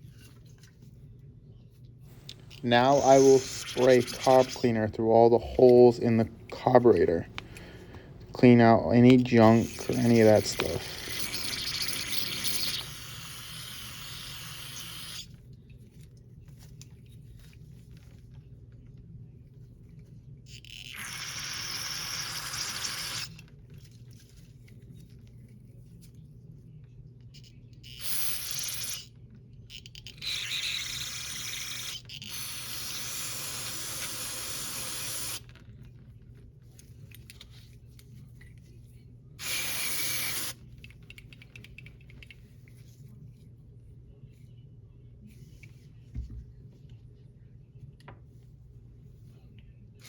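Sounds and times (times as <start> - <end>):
aerosol spray hissing: 2.2 - 15.3, 31.1 - 35.4, 39.4 - 40.6.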